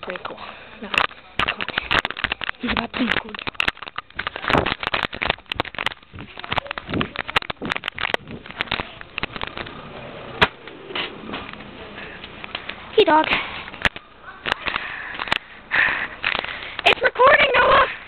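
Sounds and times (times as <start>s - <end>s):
sharp clicks and knocks: 0.9s - 9.8s.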